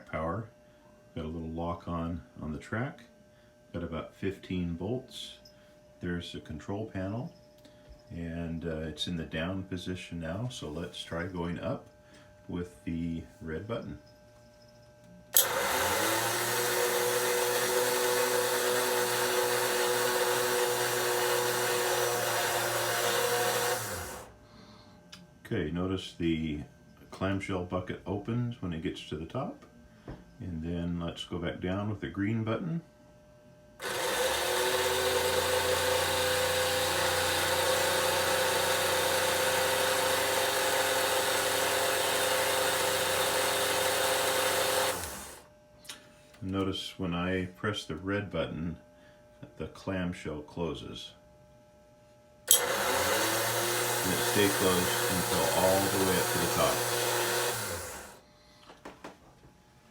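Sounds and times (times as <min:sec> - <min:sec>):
electric motor humming: 0:15.3 - 0:24.4, 0:33.8 - 0:45.6, 0:52.5 - 0:58.2
motor switch click: 0:15.4 - 0:16.5, 0:52.5 - 0:55.1.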